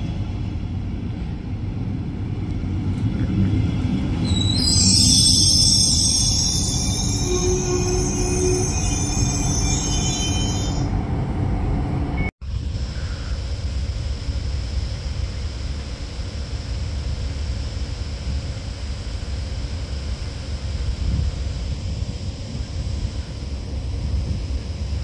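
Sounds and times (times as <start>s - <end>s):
train rumbling: 0.0s - 25.0s
train wheels squealing: 4.2s - 11.0s
wind rumble on microphone: 18.0s - 25.0s.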